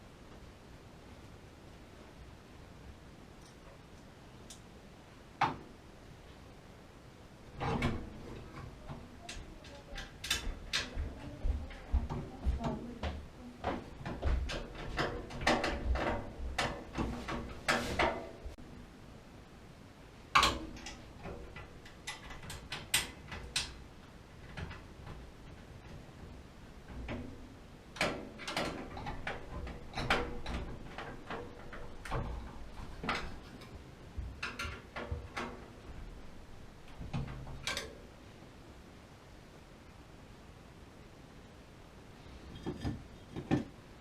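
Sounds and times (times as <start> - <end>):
tools clicking and knocking: 7.6 - 11.0, 13.0 - 18.3, 20.4 - 23.8, 28.0 - 35.8, 36.9 - 38.0, 42.5 - 43.8.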